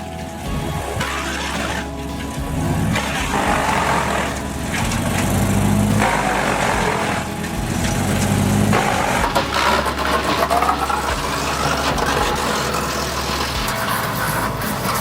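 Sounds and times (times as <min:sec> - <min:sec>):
wood chipper running: 0:00.0 - 0:15.0.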